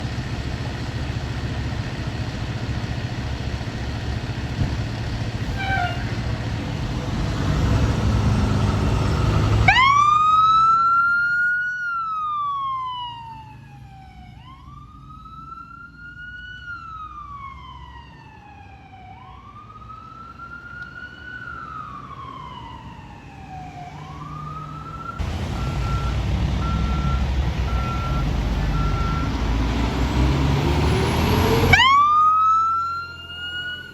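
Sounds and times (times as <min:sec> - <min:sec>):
heavy vehicle engine rumbling: 0:00.0 - 0:33.9
siren wailing: 0:08.1 - 0:29.4, 0:31.2 - 0:33.9.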